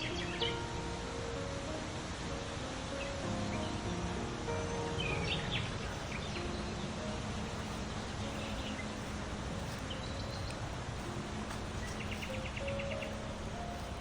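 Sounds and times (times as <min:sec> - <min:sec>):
songbirds chirping: 0:00.0 - 0:02.2, 0:02.8 - 0:14.0
outdoor background rush: 0:00.0 - 0:14.0
bird trill: 0:05.0 - 0:14.0.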